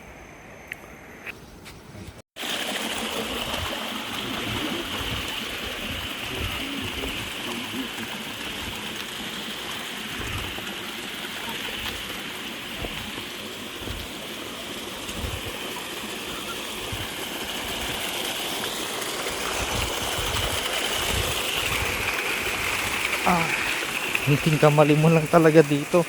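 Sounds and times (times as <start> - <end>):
rushing water: 2.4 - 26.0
dull low thumps: 12.8 - 13.2, 15.1 - 15.6.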